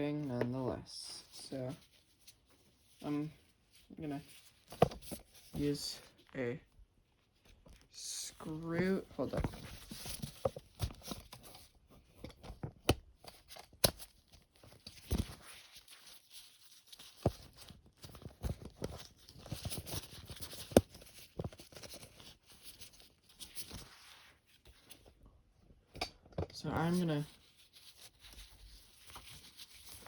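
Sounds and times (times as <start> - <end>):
rustling: 0.2 - 12.6, 13.2 - 25.2, 26.6 - 30.0.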